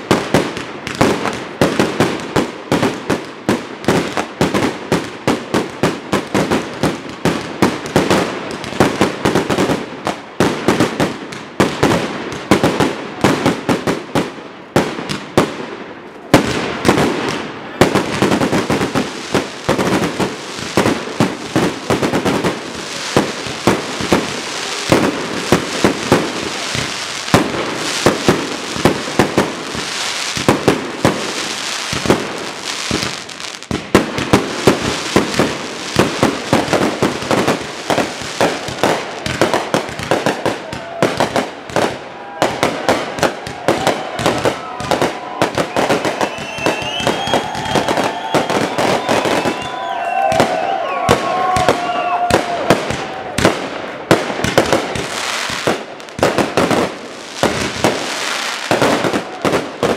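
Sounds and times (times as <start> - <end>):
fireworks bangs: 0.0 - 59.9
fireworks crackling hiss: 15.1 - 59.9.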